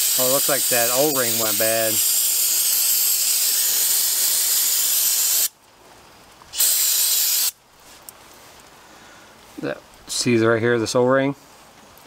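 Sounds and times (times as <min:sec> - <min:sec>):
pressurized spray hissing: 0:00.0 - 0:05.5, 0:06.5 - 0:07.6.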